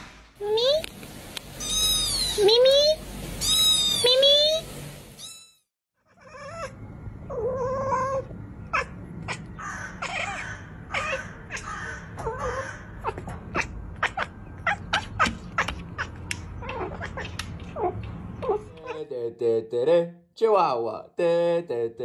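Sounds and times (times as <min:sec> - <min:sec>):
cat chirping calls: 0:01.6 - 0:02.7, 0:03.4 - 0:04.6, 0:06.0 - 0:19.0
cat chattering clicks: 0:13.2 - 0:19.0.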